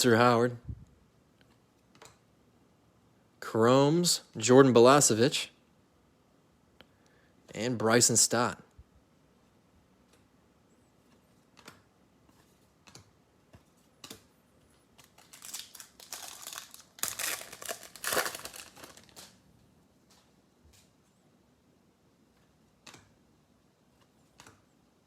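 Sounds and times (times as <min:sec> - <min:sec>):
foil wrapper tearing and crinkling: 0:15.0 - 0:19.4.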